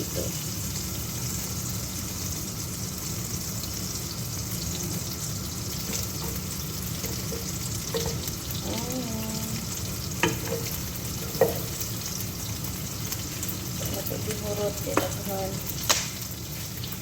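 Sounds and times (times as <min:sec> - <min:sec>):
onion sizzling in butter: 0:00.0 - 0:17.0
utensil clacking against pan: 0:05.8 - 0:08.6, 0:10.0 - 0:12.2, 0:13.8 - 0:16.3.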